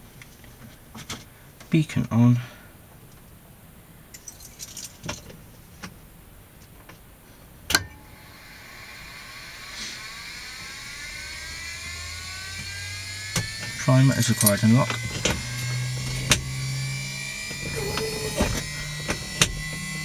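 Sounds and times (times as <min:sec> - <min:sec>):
low electrical hum: 0:00.0 - 0:20.0
electrical whine rising: 0:07.9 - 0:20.0
switches clicking: 0:12.6 - 0:16.5.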